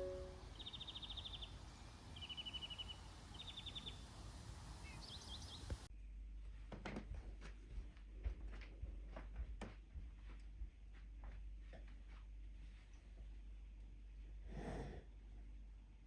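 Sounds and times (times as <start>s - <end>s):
songbird singing rapid trills: 0.0s - 1.6s, 2.2s - 4.0s.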